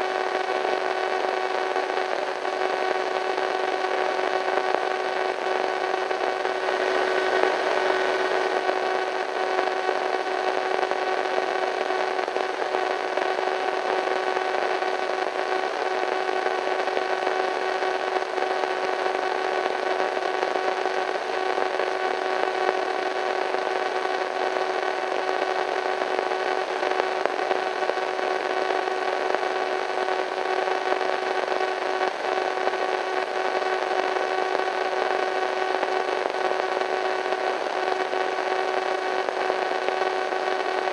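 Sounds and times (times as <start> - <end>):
radio static hiss: 0.0 - 40.9
faint steady hum tones: 3.0 - 20.5.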